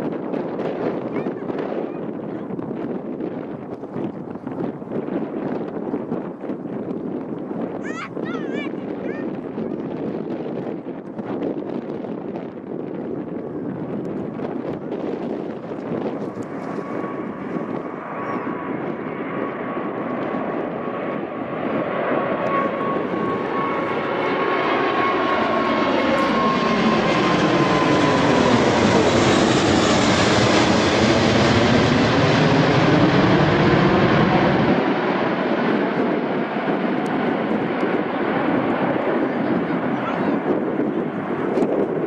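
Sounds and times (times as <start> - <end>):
airplane engines on takeoff: 0.0 - 42.0.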